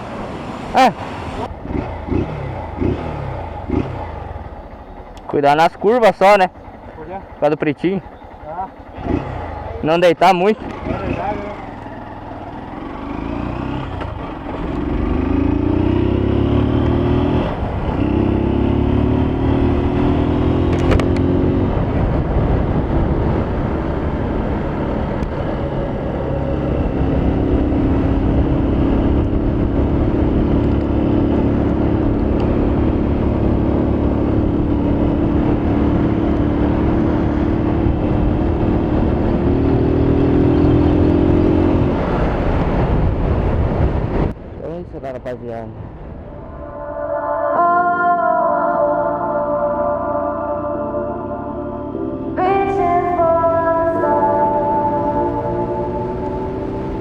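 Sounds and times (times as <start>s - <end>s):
motorcycle engine accelerating: 0.0s - 48.1s, 48.8s - 57.0s.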